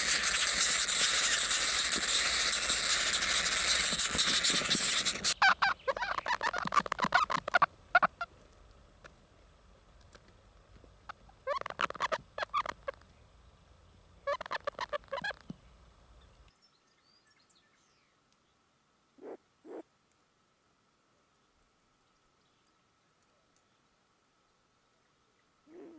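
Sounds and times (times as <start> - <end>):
bird calling rapid notes: 0.0 - 8.3.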